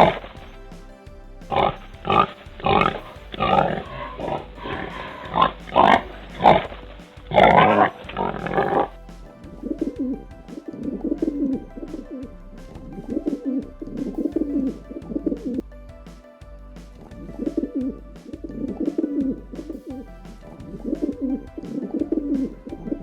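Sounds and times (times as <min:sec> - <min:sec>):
background music: 0:00.0 - 0:23.0.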